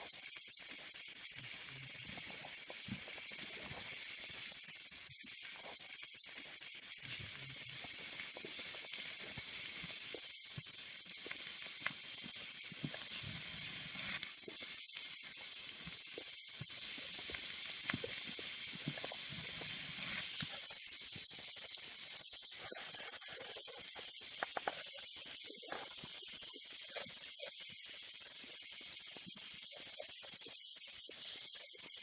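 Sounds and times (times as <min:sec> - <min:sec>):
fire pops and crackles: 0:00.1 - 0:27.5
meat sizzling on hot metal: 0:00.6 - 0:30.2.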